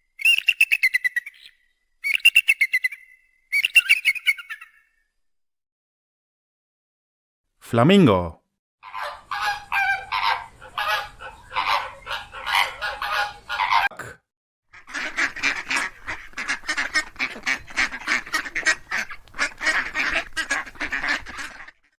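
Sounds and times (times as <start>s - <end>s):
flamingos honking: 8.8s - 13.9s, 14.8s - 21.9s
ducks quacking: 8.8s - 14.0s, 14.8s - 22.0s.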